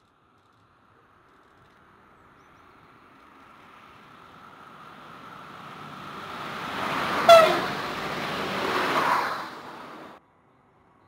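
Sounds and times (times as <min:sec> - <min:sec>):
train running on rails: 0:05.0 - 0:10.2
train horn blast: 0:07.2 - 0:07.8.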